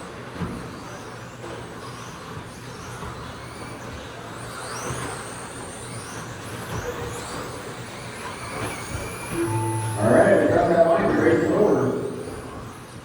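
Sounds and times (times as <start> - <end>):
electric motors whining: 4.7 - 12.8
short steady tone: 9.3 - 12.3
low hum: 9.3 - 12.4.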